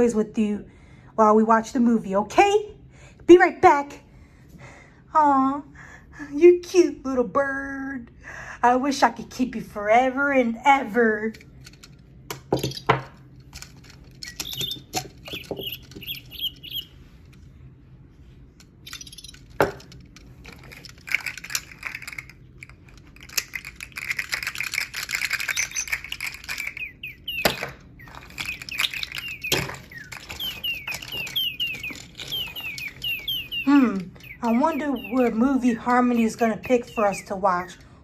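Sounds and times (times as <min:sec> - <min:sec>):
sharp clicks and knocks: 0:11.4 - 0:16.8, 0:18.6 - 0:35.4
small bird chirping: 0:14.2 - 0:17.2, 0:18.8 - 0:19.8, 0:23.4 - 0:37.9.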